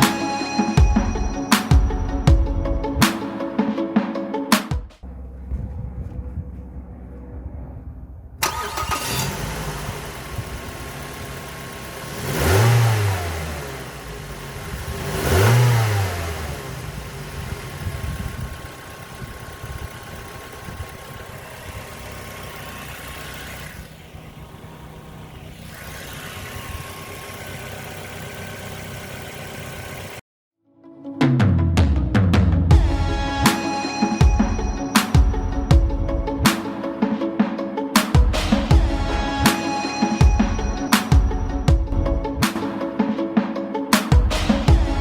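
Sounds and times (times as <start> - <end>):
car engine starting and revving: 5.0 - 30.2.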